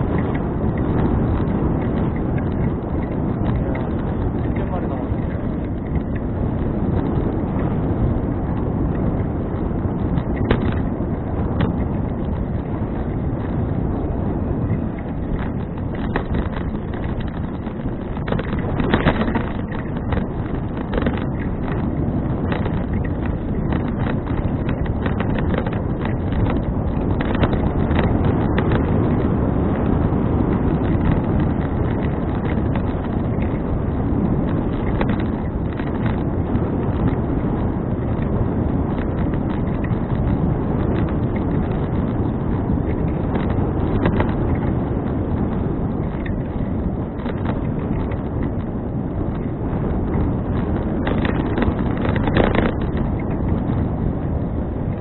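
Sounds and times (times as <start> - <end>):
scattered clicks: 0.0 - 55.0
wind buffeting microphone: 0.0 - 55.0.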